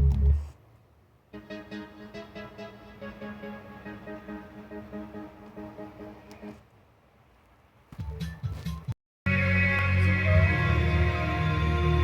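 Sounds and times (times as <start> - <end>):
music through car radio: 8.1 - 12.0.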